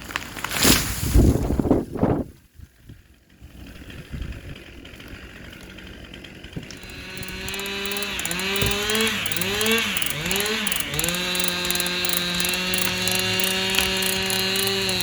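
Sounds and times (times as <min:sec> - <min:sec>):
small engine running: 0:03.1 - 0:15.0.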